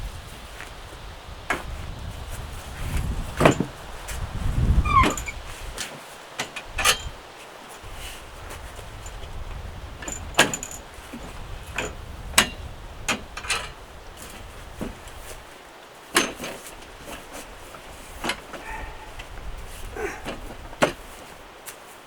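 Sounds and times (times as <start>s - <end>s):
sharp knocks and clanks: 20.2s - 21.1s.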